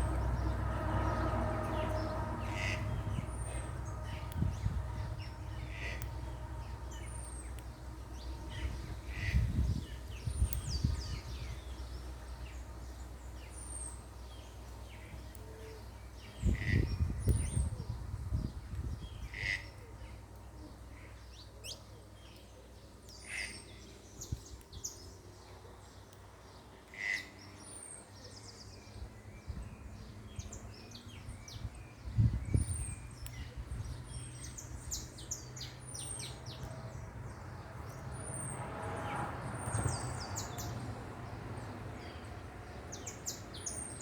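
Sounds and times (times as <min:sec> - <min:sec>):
low rumbles: 0:00.0 - 0:13.2
small birds chirping: 0:00.0 - 0:44.0.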